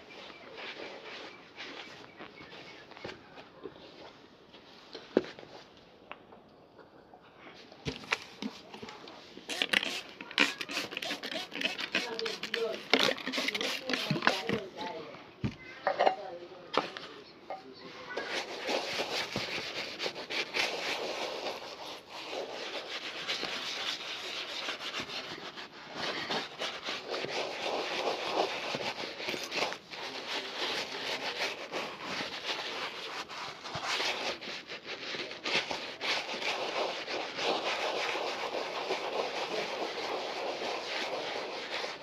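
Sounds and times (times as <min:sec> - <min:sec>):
scratchy rubbing on leather shoe: 0:00.1 - 0:03.1, 0:09.4 - 0:15.0, 0:18.1 - 0:42.0.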